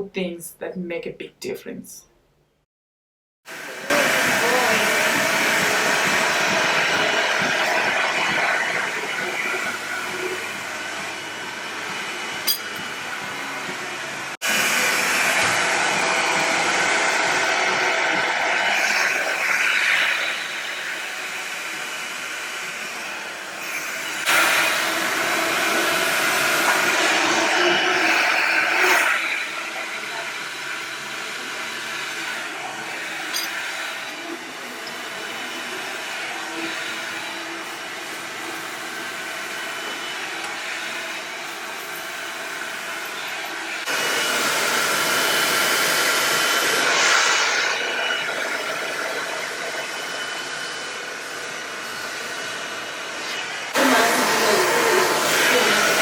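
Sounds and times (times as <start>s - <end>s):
hair dryer blowing: 3.5s - 56.0s.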